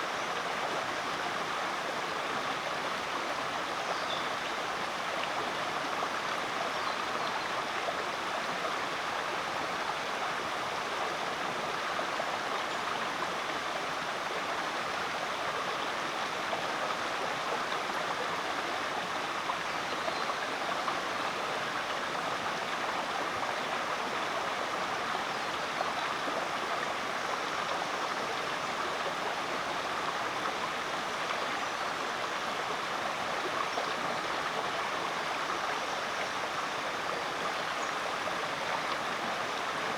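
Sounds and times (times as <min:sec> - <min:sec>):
creek water rushing: 0:00.0 - 0:39.9.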